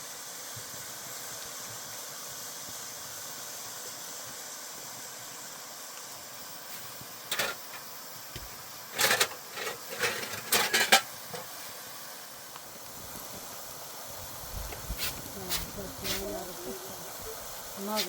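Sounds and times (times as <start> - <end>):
steady hiss: 0.0 - 18.0
pots and dishes clinking: 7.3 - 7.8, 8.9 - 11.5.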